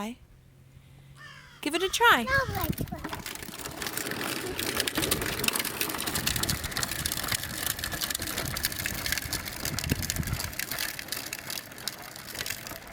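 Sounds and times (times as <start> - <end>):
wheels crackling and rumbling: 0.0 - 12.9.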